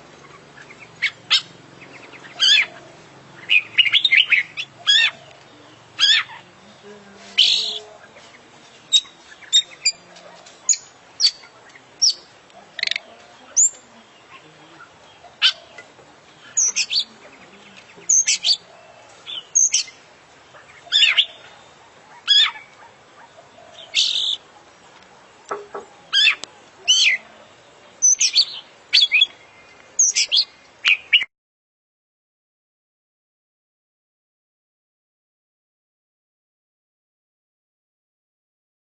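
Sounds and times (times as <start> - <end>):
bird singing whistles and chirps: 16.5 - 17.1, 19.4 - 20.0, 28.0 - 29.4, 30.0 - 31.3.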